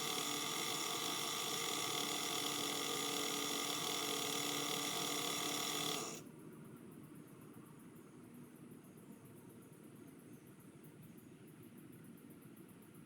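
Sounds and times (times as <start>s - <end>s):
electric motor whining: 0.0s - 6.2s.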